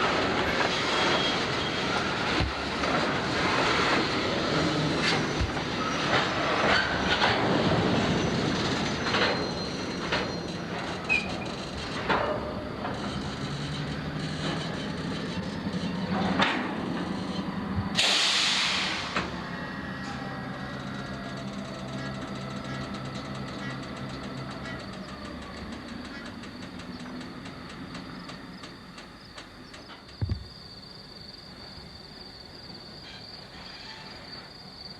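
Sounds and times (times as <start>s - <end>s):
wheels clicking over rail joints: 0.0s - 18.2s, 19.1s - 30.3s
freight train rolling past: 0.0s - 30.0s
loud burst of hiss: 18.0s - 19.2s.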